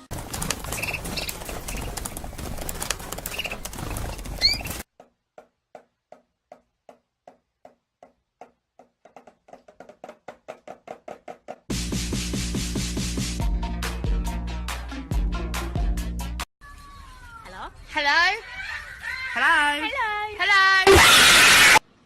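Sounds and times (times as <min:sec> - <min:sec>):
background noise: 0:00.0 - 0:11.7, 0:16.6 - 0:22.0
bird chirping: 0:00.7 - 0:02.6, 0:03.2 - 0:04.8.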